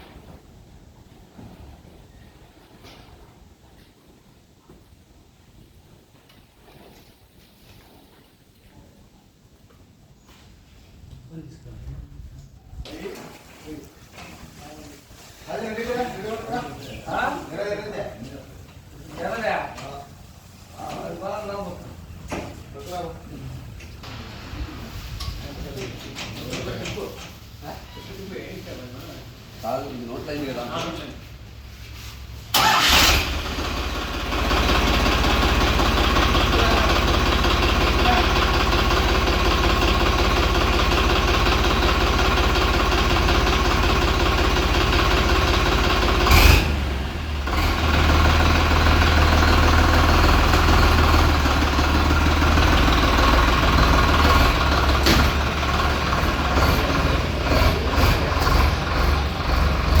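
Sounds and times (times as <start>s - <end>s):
diesel tractor engine running: 23.7s - 25.9s, 32.2s - 60.0s.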